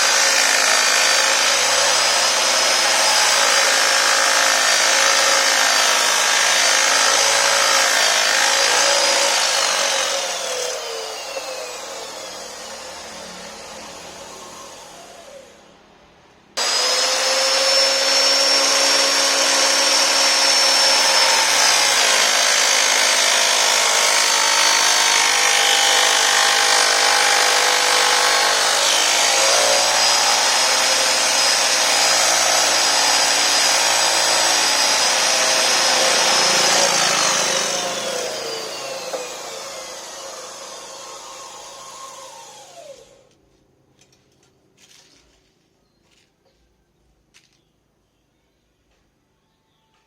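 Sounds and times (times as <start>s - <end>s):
electric motor whining: 16.6s - 43.2s.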